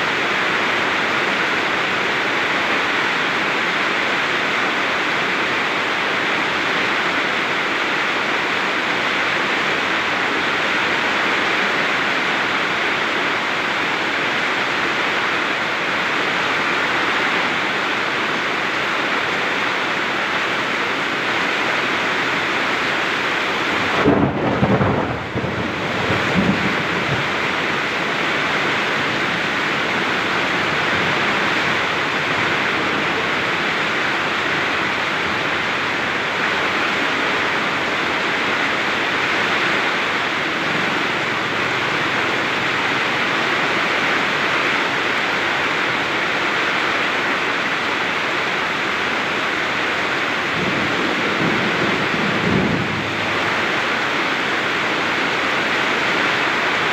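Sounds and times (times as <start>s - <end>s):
heavy rain pouring: 0.0s - 56.9s
thunder rumbling: 23.4s - 44.4s, 50.3s - 55.6s.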